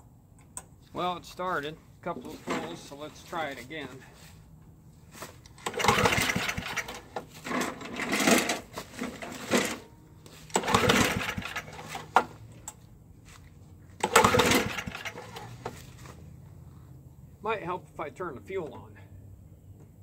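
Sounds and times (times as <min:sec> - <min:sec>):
engine cranked by pull-starter: 0:05.5 - 0:12.8, 0:14.0 - 0:16.2.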